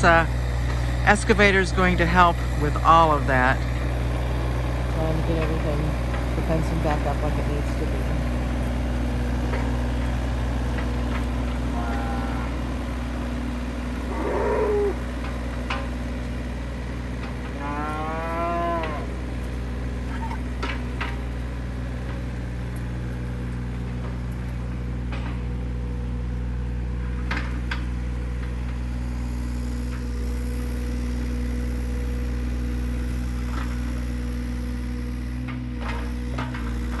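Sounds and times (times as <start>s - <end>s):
engine running: 0.0s - 37.0s
cow mooing: 11.7s - 12.7s, 14.1s - 15.1s, 17.5s - 19.2s.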